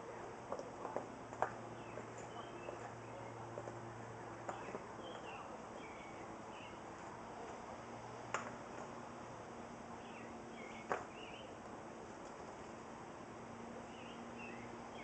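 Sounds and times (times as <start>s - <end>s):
birds chirping: 0.0s - 7.6s, 9.9s - 11.6s, 13.6s - 15.0s.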